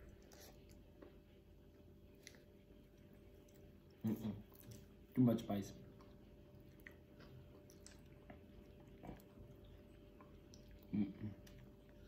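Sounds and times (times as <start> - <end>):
quiet chewing: 0.0 - 12.0.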